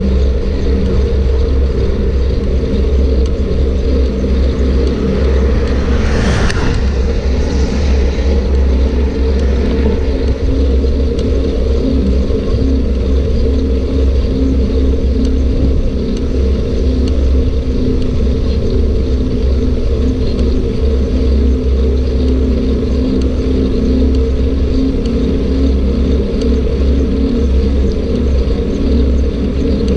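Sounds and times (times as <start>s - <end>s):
short hissing swell: 4.0s - 11.1s.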